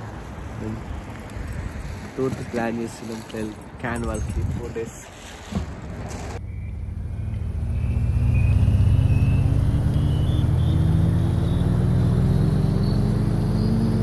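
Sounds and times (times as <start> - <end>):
car engine accelerating: 6.4 - 14.0.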